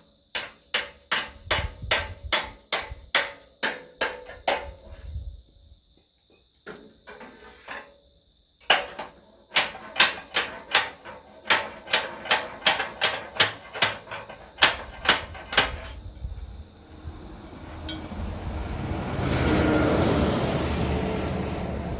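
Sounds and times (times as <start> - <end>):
hammer striking steel: 0.4 - 4.2, 17.3 - 20.1.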